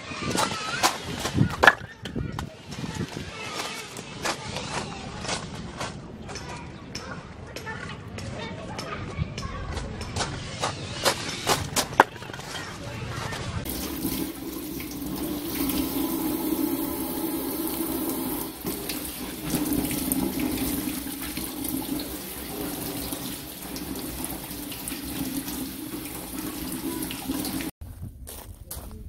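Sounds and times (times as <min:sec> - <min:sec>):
tap water running into sink: 0:13.7 - 0:27.7.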